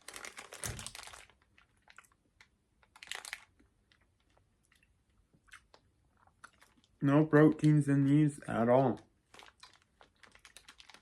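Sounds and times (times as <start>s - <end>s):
plastic packet crinkling: 0.0s - 4.4s, 8.5s - 11.0s.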